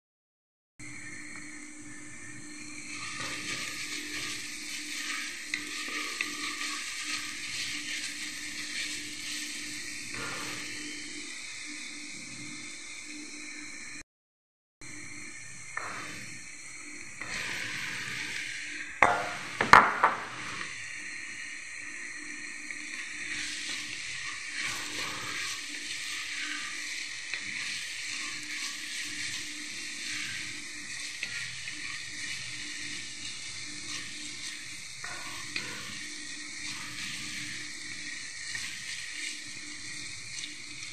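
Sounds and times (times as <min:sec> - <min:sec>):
onion sizzling in oil: 0:00.8 - 0:13.8, 0:14.8 - 0:40.9
wooden spoon scraping vegetables: 0:02.9 - 0:11.1, 0:22.9 - 0:40.9.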